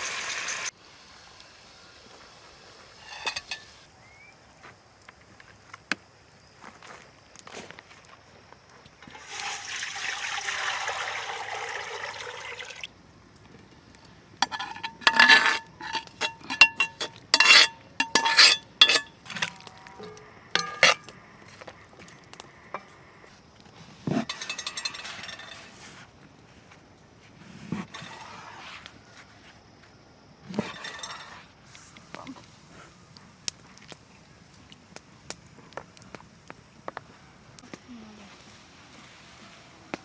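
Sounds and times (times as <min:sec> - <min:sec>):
dishes and utensils clinking: 0:03.0 - 0:03.7, 0:14.4 - 0:21.1, 0:24.2 - 0:25.7
liquid pouring: 0:09.1 - 0:12.9.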